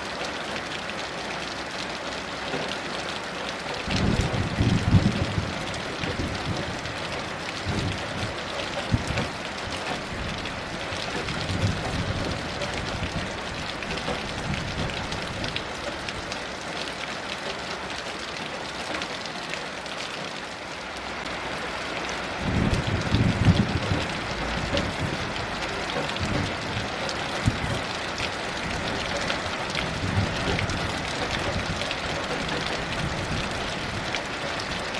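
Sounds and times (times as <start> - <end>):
heavy rain: 0.0 - 34.9
distant thunder rumbles: 3.9 - 15.6, 22.4 - 34.1.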